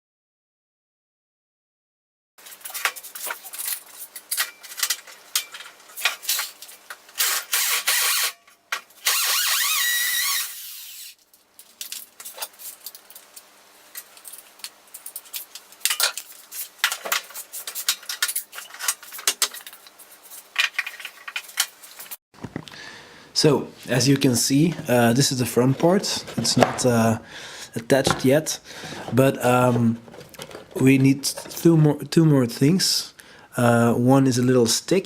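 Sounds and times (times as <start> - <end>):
power drill whining: 7.2 - 8.4, 9.0 - 11.2
clatter and scraping of wood: 14.0 - 22.6, 28.8 - 31.7.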